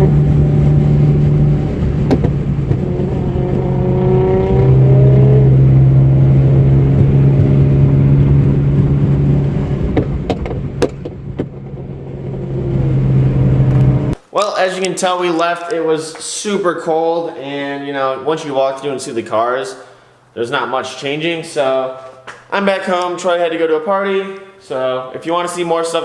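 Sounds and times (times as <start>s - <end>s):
car engine accelerating: 0.0s - 14.2s.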